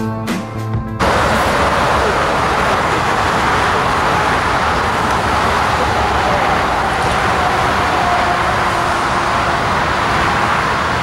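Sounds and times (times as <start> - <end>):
jet engine roar with whine: 1.0 - 11.0.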